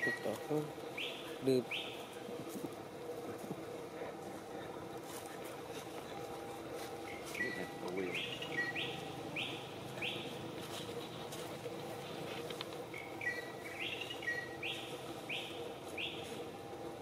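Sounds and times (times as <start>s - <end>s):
bird singing: 0.0s - 2.3s, 7.0s - 11.5s, 12.9s - 16.6s.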